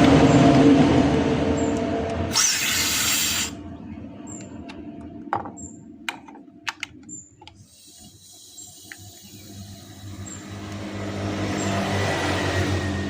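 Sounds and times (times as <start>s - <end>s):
gas hissing from valve: 2.3s - 3.6s, 7.5s - 10.8s
sharp clicks from tools: 6.1s - 9.4s.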